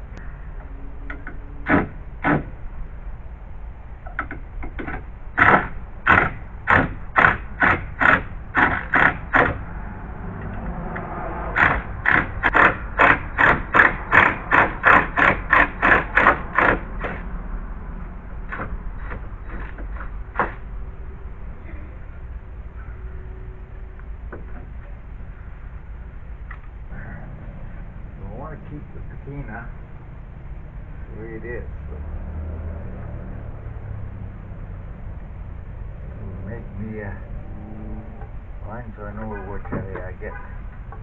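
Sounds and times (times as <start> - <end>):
hand saw cutting wood: 5.4 - 9.6, 11.6 - 17.2.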